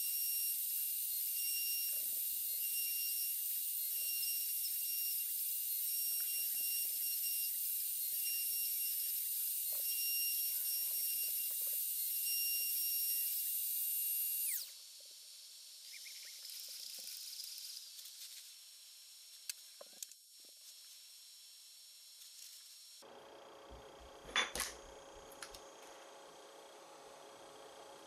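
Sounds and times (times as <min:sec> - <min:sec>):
router motor whining: 0:00.0 - 0:15.6
motor spinning down: 0:00.0 - 0:17.5.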